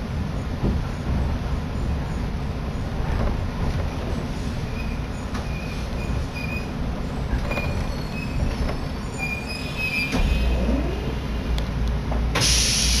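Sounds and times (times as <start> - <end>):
train carriage rumble: 0.0 - 13.0
high-pitched wheel squeals: 4.7 - 6.8, 7.5 - 11.2
loud hiss: 12.3 - 13.0.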